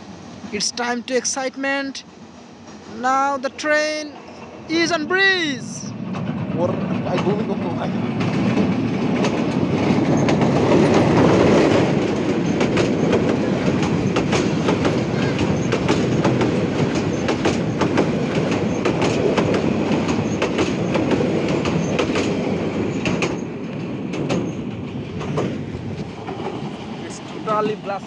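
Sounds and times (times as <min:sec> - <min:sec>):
train rumbling over bridge: 0:00.0 - 0:28.0
wheels clacking over rail joints: 0:06.0 - 0:27.8.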